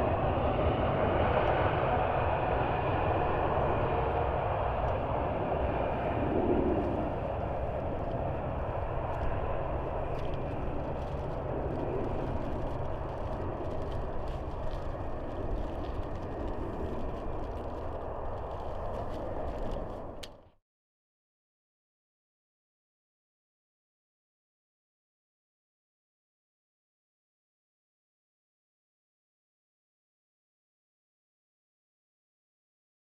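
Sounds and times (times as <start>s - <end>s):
jet engines rumbling: 0.0s - 20.4s.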